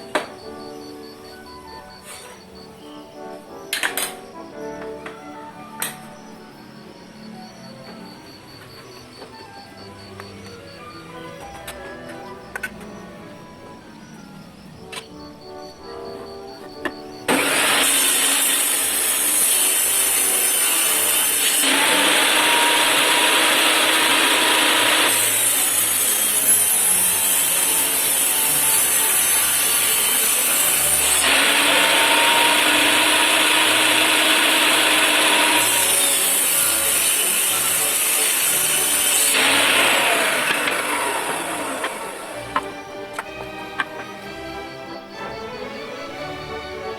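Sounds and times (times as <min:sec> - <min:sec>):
power tool whirring on wood: 0:17.3 - 0:44.3.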